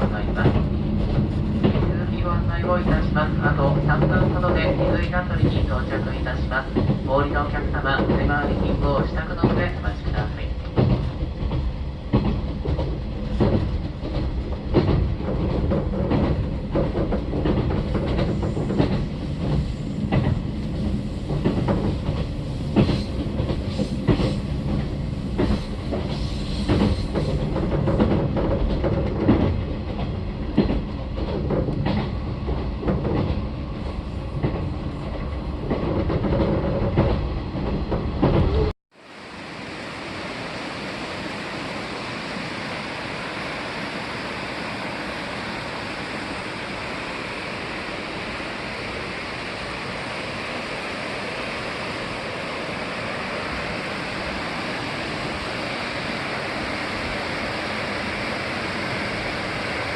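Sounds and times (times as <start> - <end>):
train running rumble: 0.0 - 59.9
rail-joint knocks and clatter: 0.1 - 33.5, 34.4 - 38.5.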